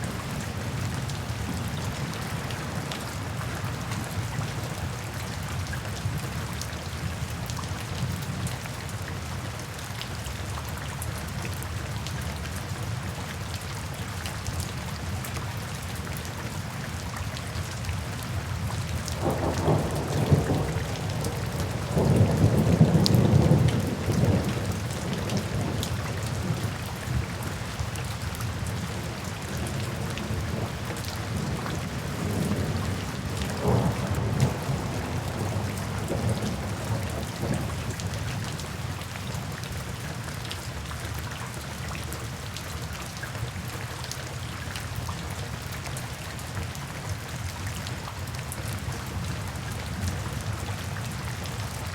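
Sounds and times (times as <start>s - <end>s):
steady rain falling: 0.0s - 51.9s
low rumble of thunder: 18.3s - 39.6s.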